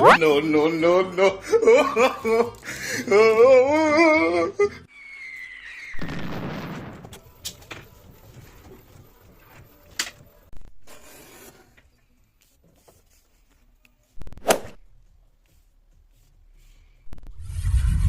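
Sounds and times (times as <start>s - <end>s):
falling whistle: 4.9s - 6.5s.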